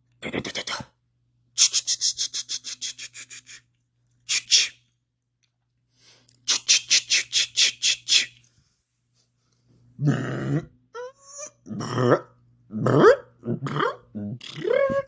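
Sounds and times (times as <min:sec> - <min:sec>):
person imitating bird chirps: 0:04.3 - 0:04.8, 0:06.5 - 0:08.4, 0:13.7 - 0:15.0.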